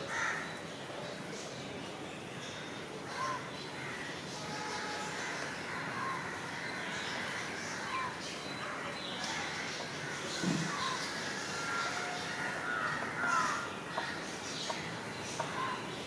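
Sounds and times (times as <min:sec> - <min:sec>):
busy bird chirping: 0:06.0 - 0:16.0.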